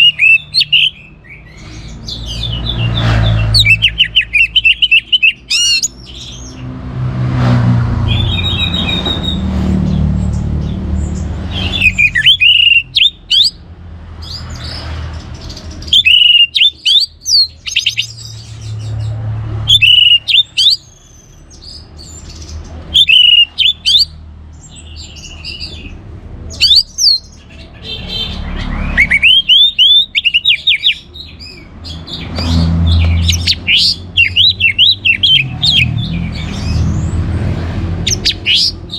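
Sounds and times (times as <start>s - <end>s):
thrush singing whistled notes: 0.0s - 6.6s, 8.0s - 9.6s, 11.5s - 13.6s, 15.8s - 18.9s, 19.5s - 25.9s, 26.5s - 27.4s, 28.0s - 37.2s, 38.0s - 38.9s.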